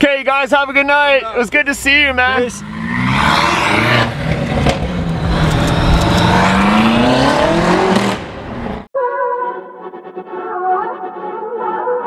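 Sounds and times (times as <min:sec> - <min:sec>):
car engine accelerating: 0:01.5 - 0:08.9.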